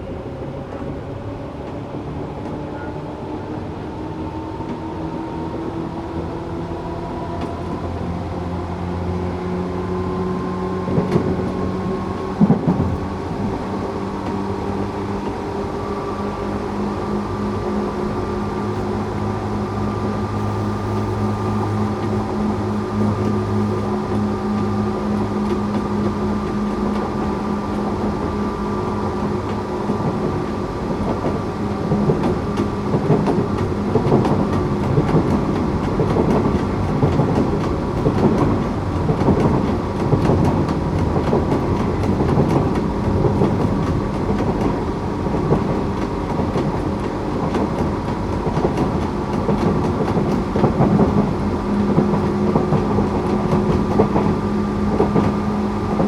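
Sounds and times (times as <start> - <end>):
train electrical hum: 0.0 - 56.0
wheel on rail rumble: 0.0 - 56.0
rail joints clicking: 28.9 - 56.0.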